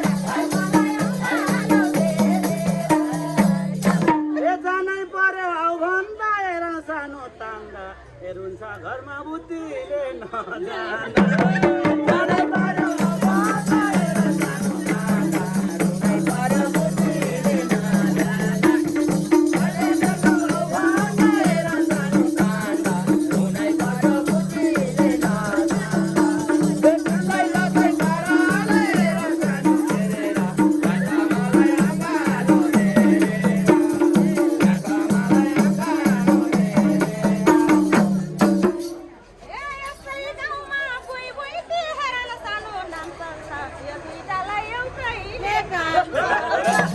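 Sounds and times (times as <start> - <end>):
shaker rattle: 0.0 - 4.1, 12.9 - 40.4, 46.6 - 46.9.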